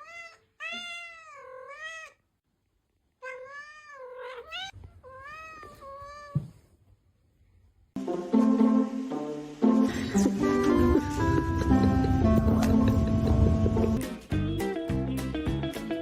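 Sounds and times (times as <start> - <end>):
cat meowing: 0.0 - 2.2, 3.2 - 6.5
music: 8.0 - 16.0.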